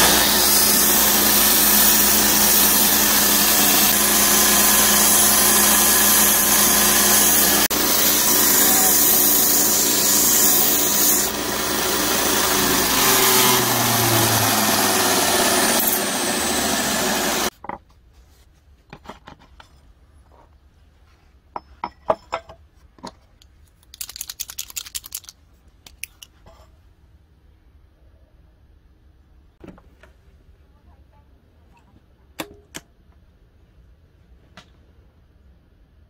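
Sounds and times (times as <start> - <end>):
belt grinder grinding steel: 0.0 - 17.5.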